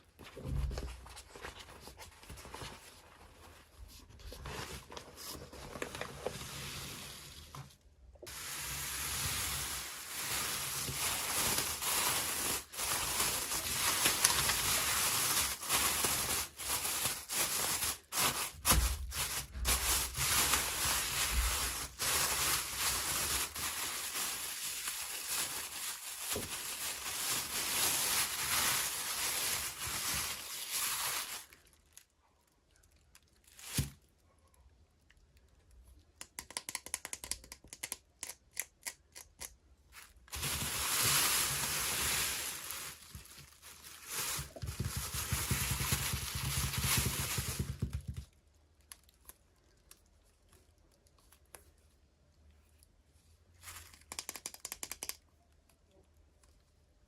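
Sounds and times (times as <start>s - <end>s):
packaging rustling and tearing: 8.3s - 32.0s, 39.9s - 48.2s.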